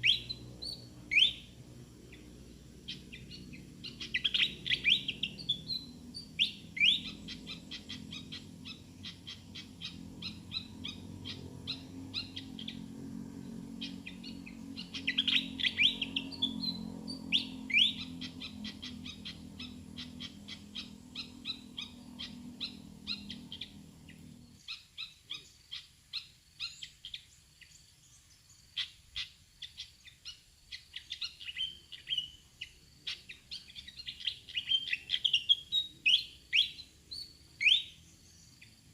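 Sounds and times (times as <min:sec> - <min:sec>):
low steady hum: 0:00.0 - 0:24.7.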